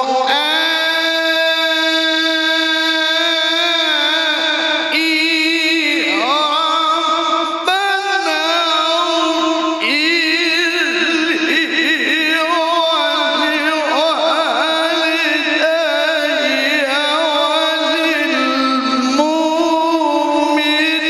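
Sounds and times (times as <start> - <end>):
man reciting melodically: 0.0 - 21.0.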